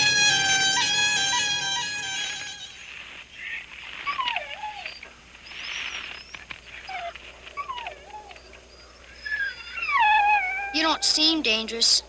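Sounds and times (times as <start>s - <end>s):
dog whining: 4.0s - 11.2s.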